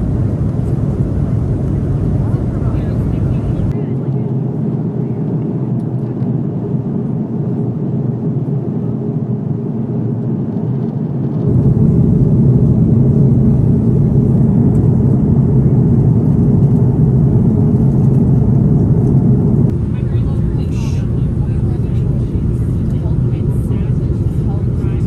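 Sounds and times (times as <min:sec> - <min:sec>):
airplane cabin engine drone: 0:00.0 - 0:25.0.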